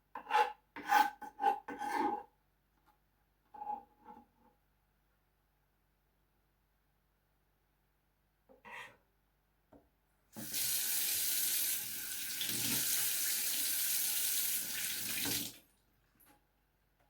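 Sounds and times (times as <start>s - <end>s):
tap water running into sink: 10.4s - 15.6s.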